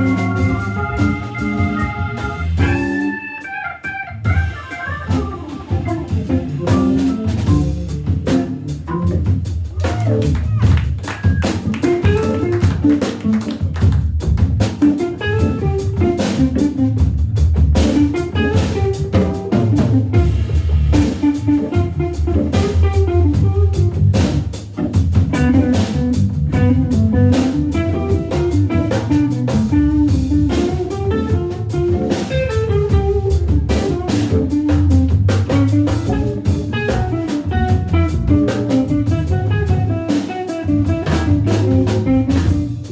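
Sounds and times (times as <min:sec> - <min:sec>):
organ: 0:00.0 - 0:09.2
electric guitar lead: 0:00.0 - 0:13.9, 0:14.6 - 0:42.9
drum kit: 0:00.0 - 0:42.9.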